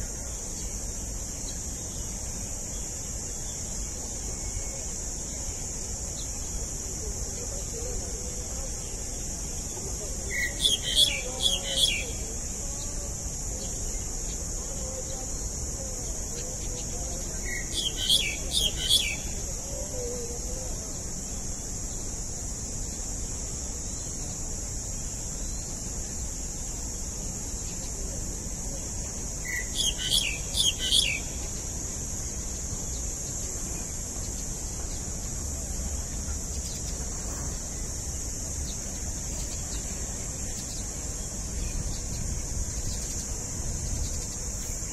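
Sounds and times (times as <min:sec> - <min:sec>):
high-pitched hiss: 0:00.0 - 0:44.9
bird chirping rapidly: 0:29.4 - 0:31.4.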